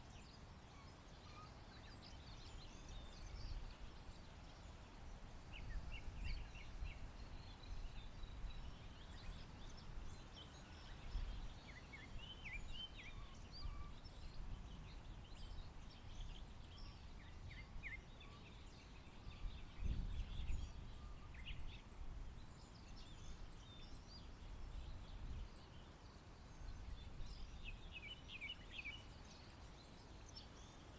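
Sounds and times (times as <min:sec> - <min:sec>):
songbirds chirping and singing: 0:00.0 - 0:30.9.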